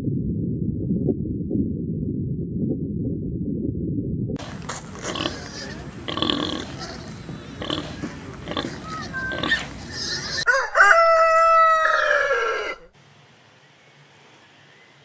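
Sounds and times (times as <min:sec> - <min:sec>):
pigs grunting: 0:05.0 - 0:10.4
rooster crowing: 0:10.4 - 0:13.0.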